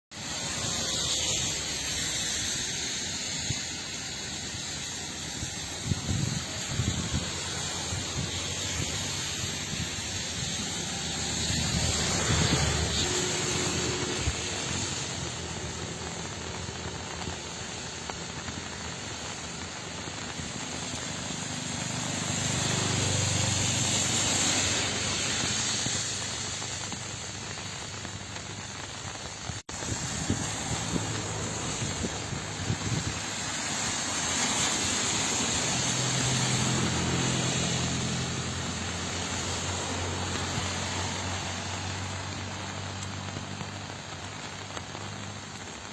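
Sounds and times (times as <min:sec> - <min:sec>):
rain falling: 0:00.1 - 0:45.9.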